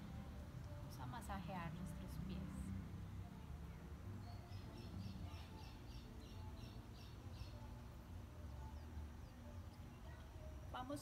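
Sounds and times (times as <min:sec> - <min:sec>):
bird chirping: 0:03.0 - 0:11.0.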